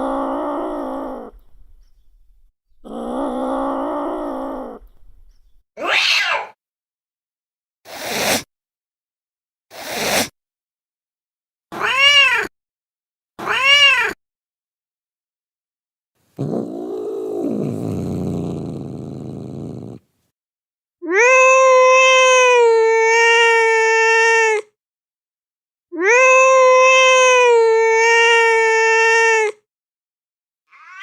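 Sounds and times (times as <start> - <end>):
cat rough low cry: 0.0 - 1.3, 2.8 - 4.8, 21.0 - 24.7, 26.0 - 29.6
cat meowing: 5.8 - 6.6, 11.8 - 12.5, 13.4 - 14.2, 21.0 - 24.7, 26.0 - 29.6, 30.7 - 31.0
cat yowling: 5.8 - 6.6, 11.8 - 12.5, 13.4 - 14.2, 21.0 - 24.7, 26.0 - 29.6, 30.7 - 31.0.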